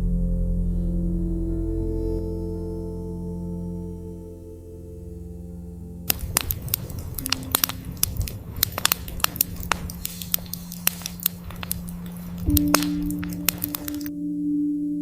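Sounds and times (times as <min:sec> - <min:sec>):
ambient music drone: 0:00.0 - 0:15.0
burning wood crackling and popping: 0:06.1 - 0:14.1.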